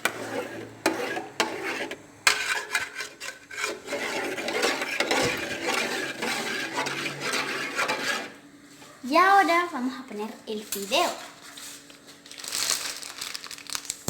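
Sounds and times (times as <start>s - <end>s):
spoon scraping cooking pot: 0.0s - 8.4s.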